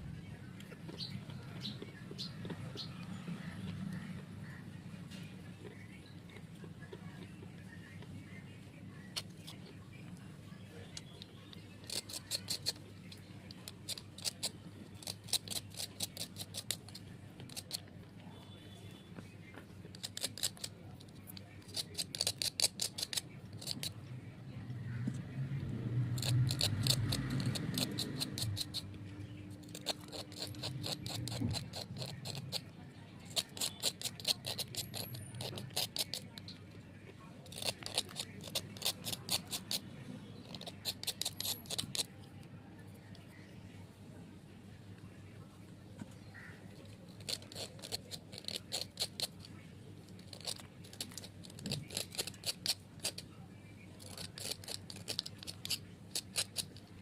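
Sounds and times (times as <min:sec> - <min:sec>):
slate crunching with crisp clicks: 0:19.2 - 0:24.0, 0:26.2 - 0:32.7, 0:33.3 - 0:39.8, 0:46.0 - 0:53.3, 0:54.0 - 0:57.0.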